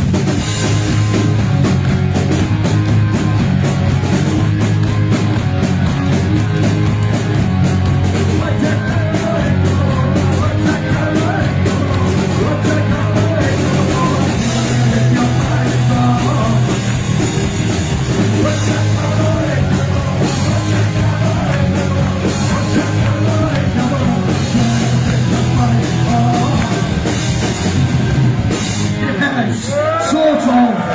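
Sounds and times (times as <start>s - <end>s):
drum kit: 0.0s - 30.0s
bass guitar: 0.0s - 30.9s
distorted electric guitars: 0.0s - 30.9s
shouted vocals: 29.0s - 30.9s.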